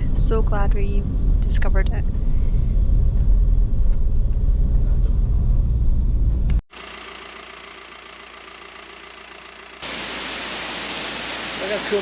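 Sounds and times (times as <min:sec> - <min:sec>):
road and engine rumble in car: 0:00.0 - 0:12.0
rushing hiss: 0:09.8 - 0:12.0.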